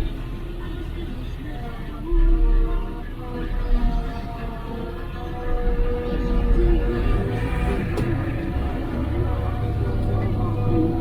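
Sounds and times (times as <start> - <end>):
radio playing music: 0.0 - 11.0
truck diesel engine running: 3.8 - 11.0.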